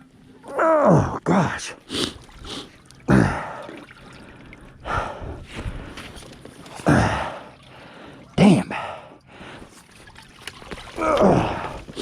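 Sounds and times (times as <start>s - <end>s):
man breathing hard: 1.9s - 6.2s, 6.8s - 9.8s.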